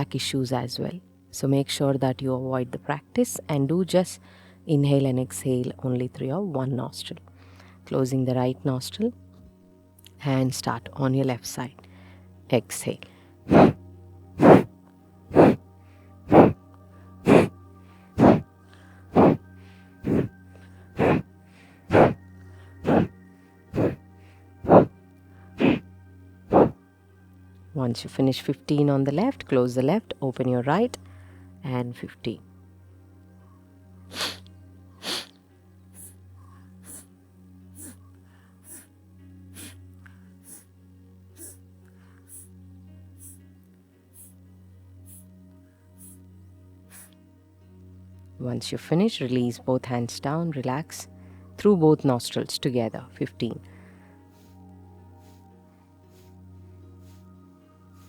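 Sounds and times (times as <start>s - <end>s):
soft music with held drone: 0.0s - 58.0s
forceful nasal exhalations: 13.4s - 13.8s, 14.4s - 14.7s, 15.3s - 16.6s, 17.2s - 25.9s, 26.5s - 26.8s, 34.1s - 35.4s, 36.0s - 36.2s, 36.8s - 37.1s, 37.7s - 38.9s, 39.5s - 40.7s, 41.4s - 42.5s, 46.9s - 47.2s, 56.1s - 57.3s.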